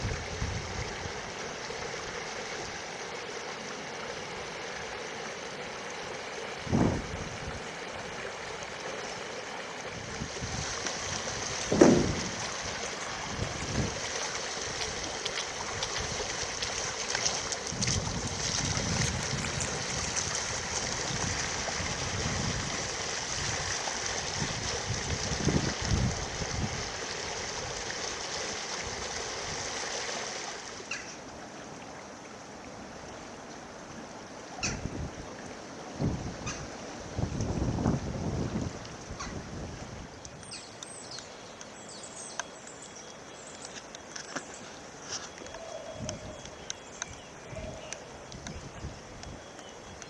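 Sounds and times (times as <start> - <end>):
floodwater rushing: 0.0 - 45.6
wind buffeting microphone: 6.6 - 7.6, 10.0 - 14.0, 36.0 - 40.1.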